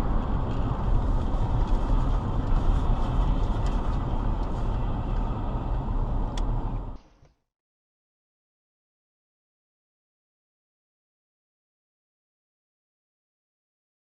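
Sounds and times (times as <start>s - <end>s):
vehicle road noise rumble: 0.0s - 7.3s.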